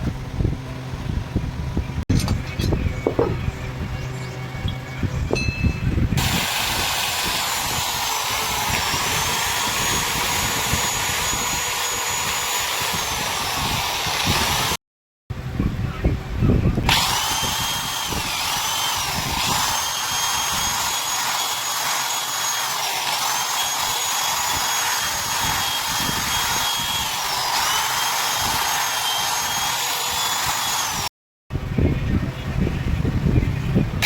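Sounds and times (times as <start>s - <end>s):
rough rumbling tool noise: 0.0s - 14.8s, 16.6s - 31.1s
electric power tool whining: 5.9s - 14.8s, 16.8s - 31.1s.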